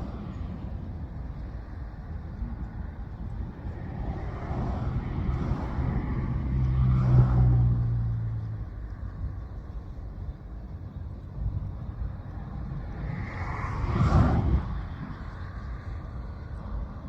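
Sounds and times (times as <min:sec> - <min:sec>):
motor vehicle passing by: 0:04.0 - 0:08.7.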